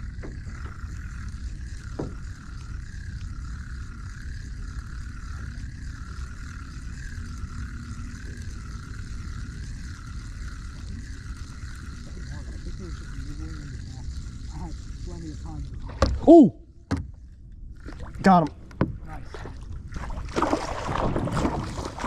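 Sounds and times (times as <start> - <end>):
kayak drive whining: 0.0 - 22.0
wind rumble on microphone: 17.6 - 22.0.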